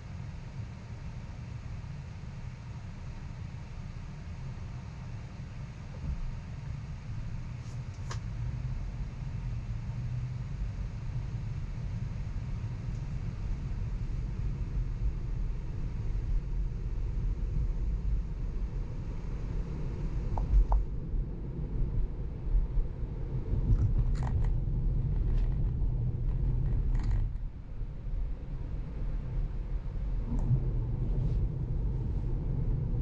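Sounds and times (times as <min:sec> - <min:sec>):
road and tyre noise: 0:07.4 - 0:33.0.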